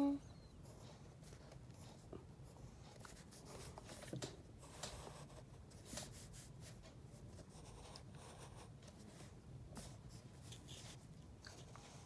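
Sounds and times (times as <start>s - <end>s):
pen scratching on paper: 4.6s - 6.8s, 7.4s - 11.0s.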